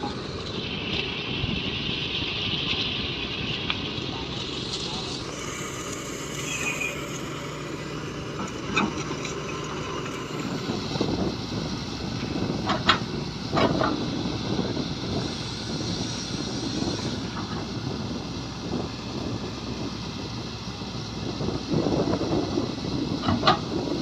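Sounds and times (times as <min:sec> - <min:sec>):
excavator diesel engine running: 0:00.0 - 0:24.0
metallic clanks and squeals: 0:05.3 - 0:10.6.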